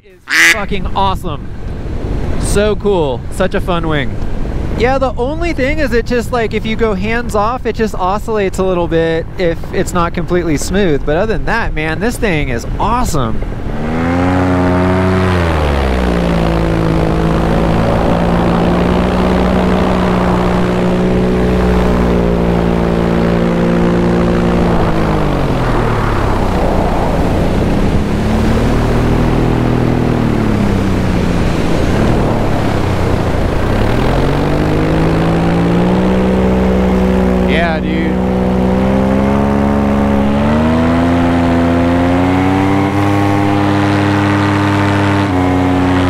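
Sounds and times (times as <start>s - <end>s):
paramotor engine and propeller: 0.0s - 7.5s, 12.2s - 46.0s
wind rushing: 13.4s - 38.5s.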